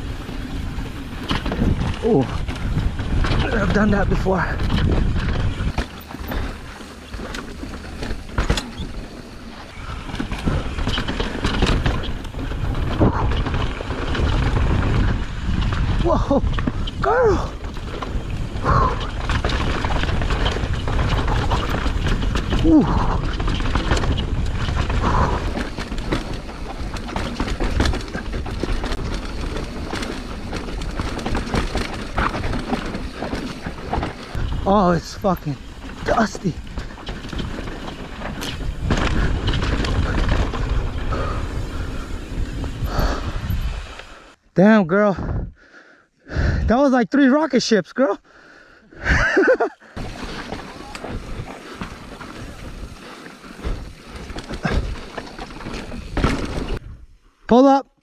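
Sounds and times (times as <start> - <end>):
wind buffeting microphone: 0.0 - 9.1, 9.7 - 44.0, 45.2 - 45.6
bike knocking and rattling: 0.0 - 44.3, 49.0 - 57.6
tyres on dirt and rocks: 0.0 - 45.5, 48.9 - 57.8.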